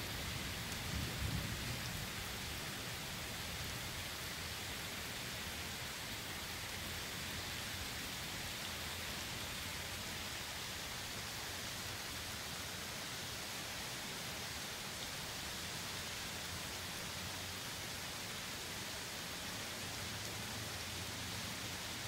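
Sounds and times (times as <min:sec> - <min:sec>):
steady rain hiss: 0:00.0 - 0:22.0
low rumble of thunder: 0:00.5 - 0:02.6.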